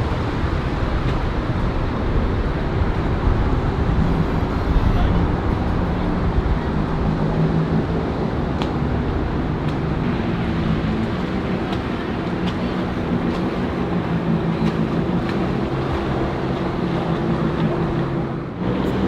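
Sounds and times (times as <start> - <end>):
boat engine humming: 0.0 - 19.0
water wash noise: 0.0 - 19.0.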